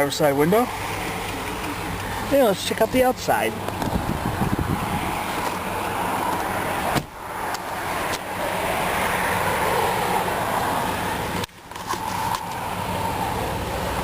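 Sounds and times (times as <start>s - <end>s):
car engine idling: 0.0s - 14.0s
wind on microphone: 3.7s - 5.4s.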